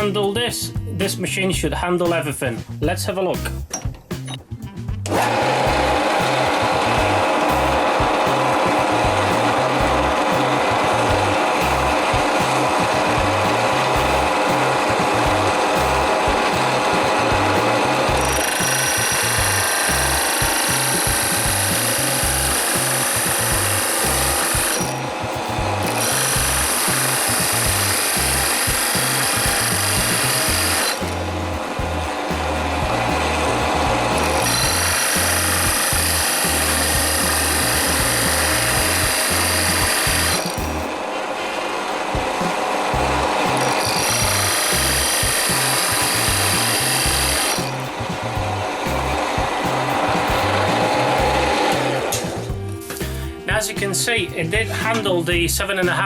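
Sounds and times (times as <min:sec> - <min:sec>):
background music with bass: 0:00.0 - 0:41.0, 0:42.1 - 0:56.0
drill press boring wood: 0:05.1 - 0:12.7, 0:16.2 - 0:25.0, 0:25.8 - 0:31.2, 0:34.1 - 0:40.6, 0:43.5 - 0:47.8.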